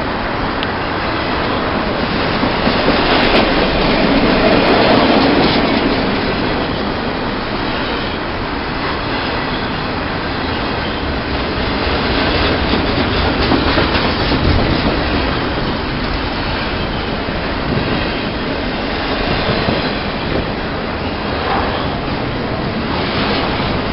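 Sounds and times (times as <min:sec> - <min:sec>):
train rolling past: 0:00.0 - 0:23.9.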